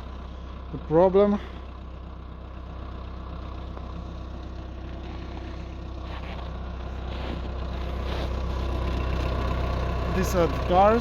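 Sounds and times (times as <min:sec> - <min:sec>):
diesel engine idling: 0:00.0 - 0:11.0
faint scuffs: 0:04.8 - 0:09.3.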